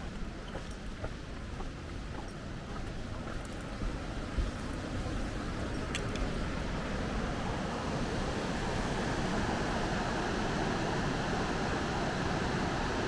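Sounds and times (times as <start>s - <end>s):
light clicks: 5.7s - 6.7s.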